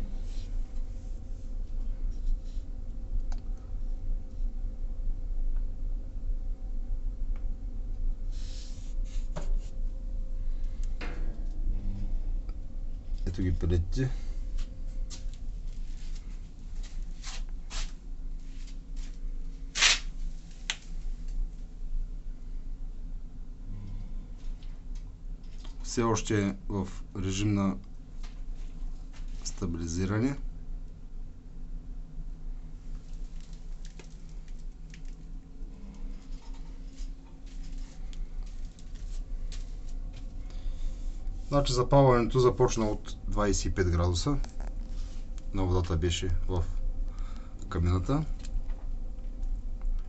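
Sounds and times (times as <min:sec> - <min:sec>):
pellet stove fan hum: 0:00.0 - 0:50.0
short rustling noises: 0:14.6 - 0:19.2
wood pellets crackling: 0:32.9 - 0:35.3.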